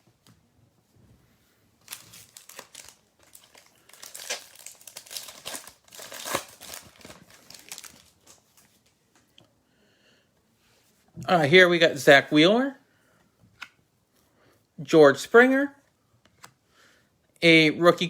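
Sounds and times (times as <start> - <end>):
card pack wrapper crinkling: 1.8 - 8.8.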